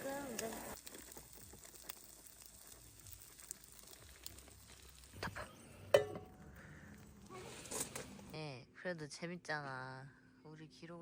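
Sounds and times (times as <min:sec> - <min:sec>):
corn sizzling in a pan: 0:00.0 - 0:08.4.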